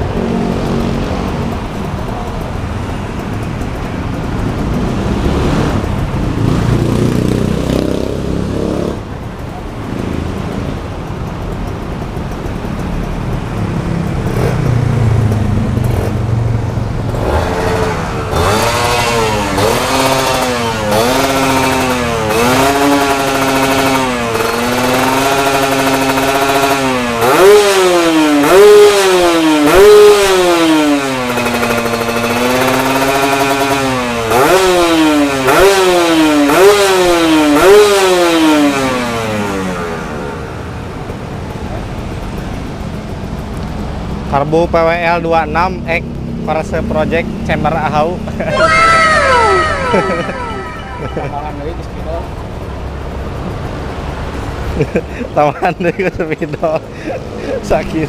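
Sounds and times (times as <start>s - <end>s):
two-stroke motorcycle engine revving: 0.0s - 40.9s.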